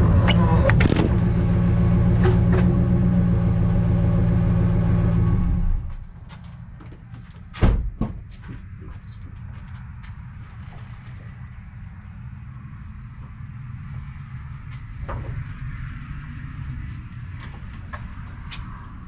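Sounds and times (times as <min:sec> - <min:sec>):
vehicle engine running: 0:00.0 - 0:06.7.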